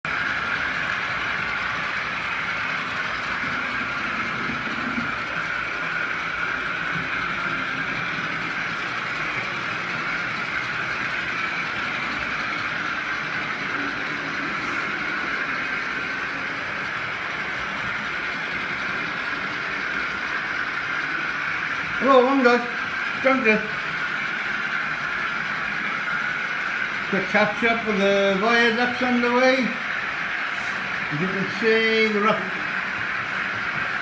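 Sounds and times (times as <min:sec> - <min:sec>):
model train running on track: 0:00.0 - 0:34.0.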